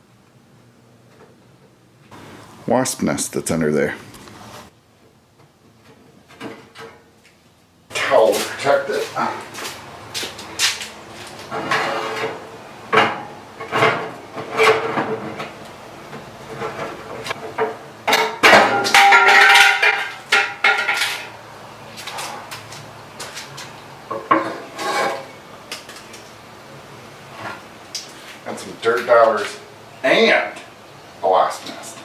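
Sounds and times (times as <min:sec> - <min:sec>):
sheet metal clanking and knocking: 0:16.5 - 0:21.3.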